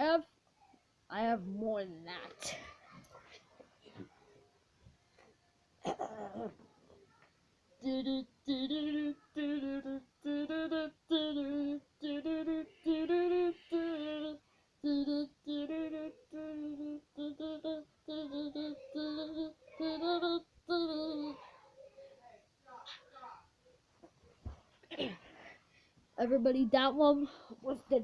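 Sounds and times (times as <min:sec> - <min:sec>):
child singing wordless notes: 0:07.8 - 0:22.1.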